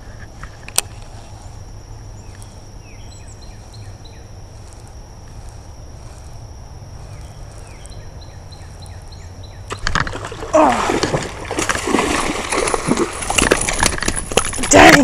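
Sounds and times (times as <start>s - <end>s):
high insect buzz: 0.0s - 15.0s
bird chirping: 2.0s - 4.5s, 7.0s - 9.8s.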